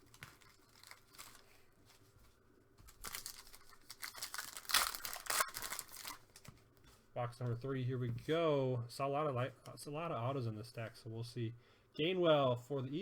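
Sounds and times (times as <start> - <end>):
wrapper crinkling and ripping: 0.0 - 2.2, 2.8 - 6.7.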